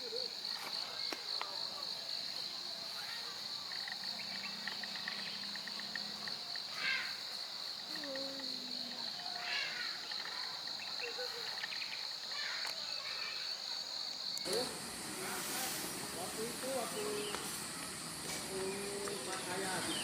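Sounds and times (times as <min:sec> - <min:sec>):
insects trilling: 0:00.0 - 0:20.0
pulsed insect chirping: 0:00.0 - 0:20.0.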